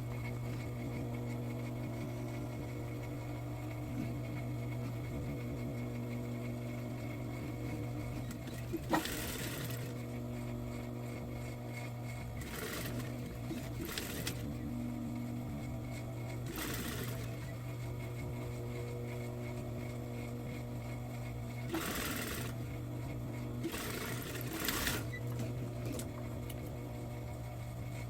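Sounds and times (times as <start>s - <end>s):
sewing machine motor humming: 0.2s - 28.0s
sewing machine stitching: 7.9s - 10.1s, 12.1s - 14.5s, 15.9s - 17.6s, 21.6s - 22.6s, 23.6s - 26.2s.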